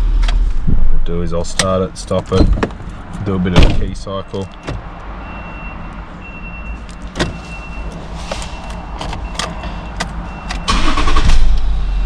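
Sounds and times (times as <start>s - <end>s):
starter cranking: 10.6s - 11.5s.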